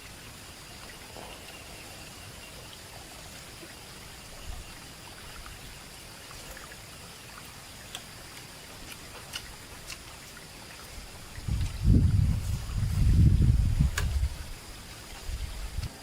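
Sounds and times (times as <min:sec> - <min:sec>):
water trickling: 0:00.0 - 0:16.0.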